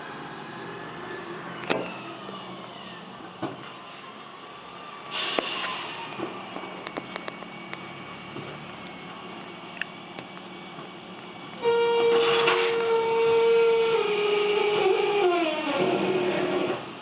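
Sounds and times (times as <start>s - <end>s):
loud high squeal: 1.8s - 4.1s, 11.6s - 16.8s
refuse truck mechanism creaking: 12.0s - 16.9s.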